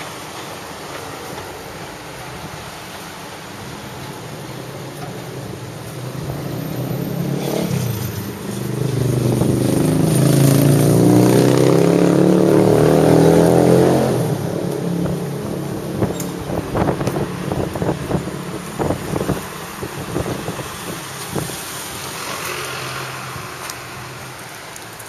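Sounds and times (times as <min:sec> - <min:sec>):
street traffic noise: 0:00.0 - 0:25.0
vehicle engine accelerating: 0:05.6 - 0:23.7.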